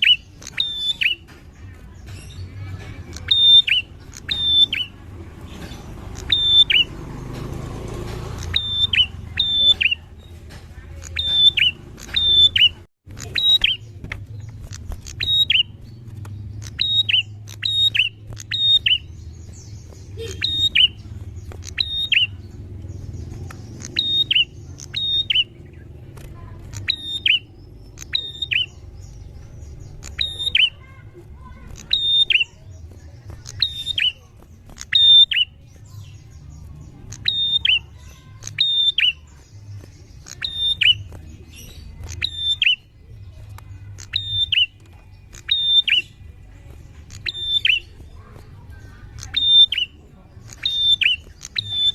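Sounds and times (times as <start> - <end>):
bird chirping: 0.0 - 51.9.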